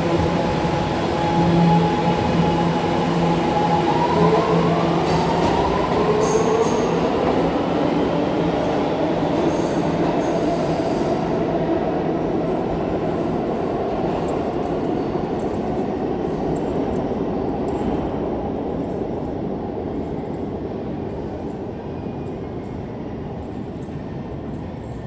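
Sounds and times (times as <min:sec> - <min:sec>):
subway train wheels on rails: 0:00.0 - 0:25.0.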